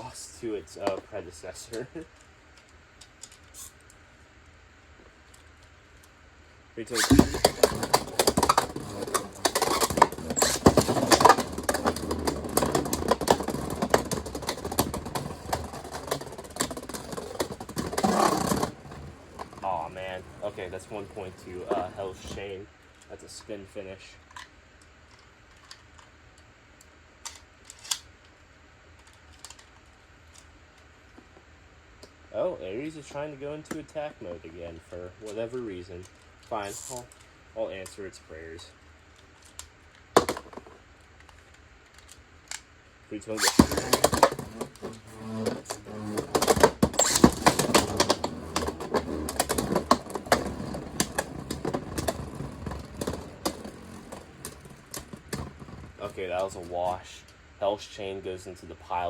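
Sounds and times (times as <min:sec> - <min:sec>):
plastic spinning tops clicking: 0:07.0 - 0:22.1, 0:43.4 - 0:56.8.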